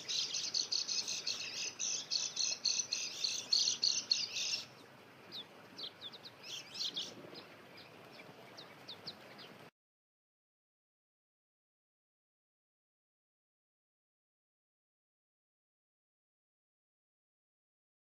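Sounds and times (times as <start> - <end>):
birds twittering chirps: 0.0 - 9.7.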